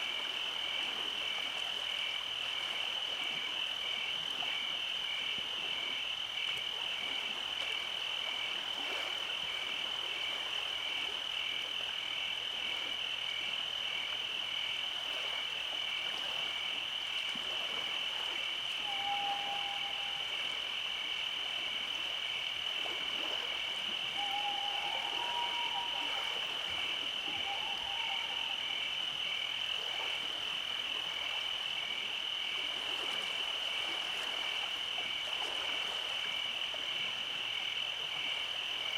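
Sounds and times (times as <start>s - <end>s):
insect chirping in even pulse: 18.2s - 32.5s
short lower insect trills: 18.7s - 21.0s, 23.8s - 30.1s
insect high trill: 18.8s - 21.2s, 23.9s - 30.0s.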